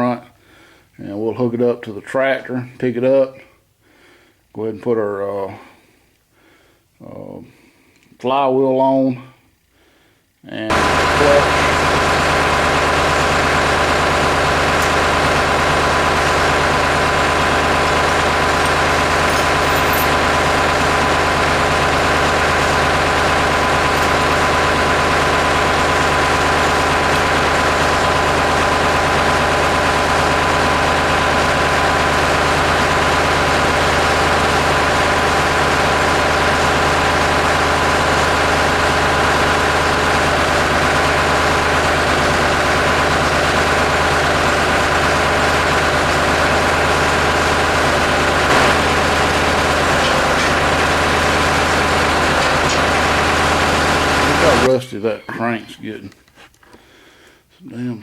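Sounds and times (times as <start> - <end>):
tractor engine idling: 10.7 - 56.0.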